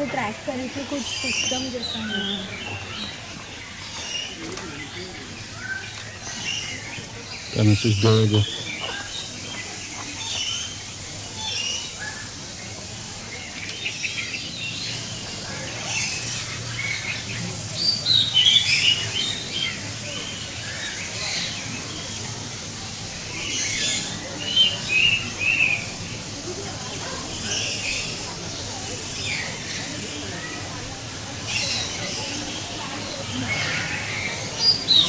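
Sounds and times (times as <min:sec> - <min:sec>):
birds chirping: 0:00.0 - 0:35.0.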